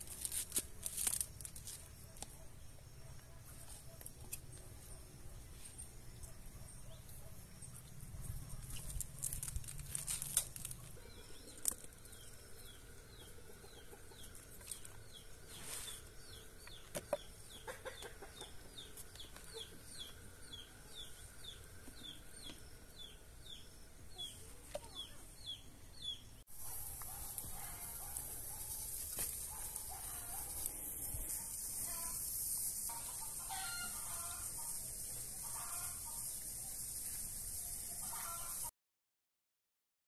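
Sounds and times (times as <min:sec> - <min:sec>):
bird chirping: 0:10.6 - 0:28.9.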